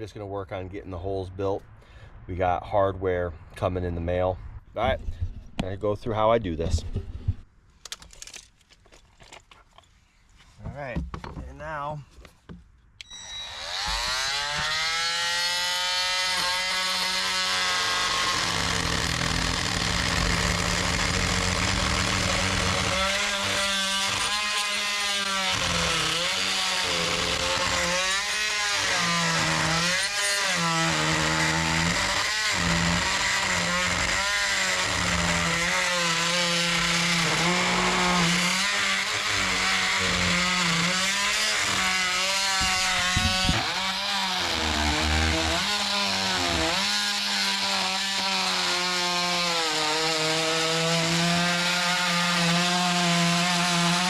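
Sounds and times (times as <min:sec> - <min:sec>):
multi-tool cutting wood: 0:12.2 - 0:54.0.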